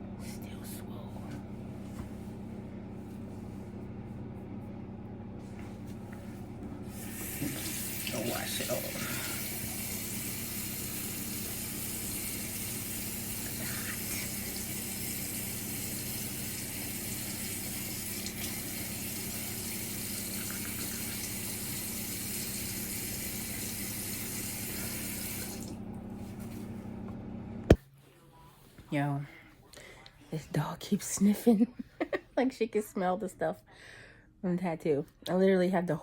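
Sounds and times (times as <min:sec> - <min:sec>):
water running from a tap: 0:06.9 - 0:25.9.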